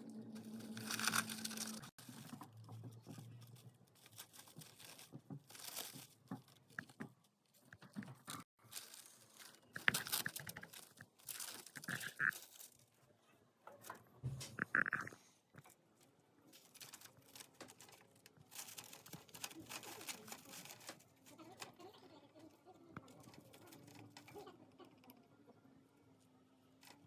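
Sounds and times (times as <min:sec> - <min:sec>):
hamster rustling cage bedding: 0:00.3 - 0:13.0, 0:16.5 - 0:22.0.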